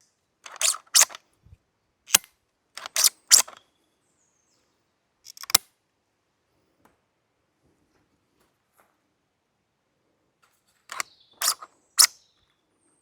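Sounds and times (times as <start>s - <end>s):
airsoft rifle shots and bolt clicks: 0.5s - 1.2s, 2.1s - 3.6s, 5.3s - 5.7s, 10.9s - 12.2s.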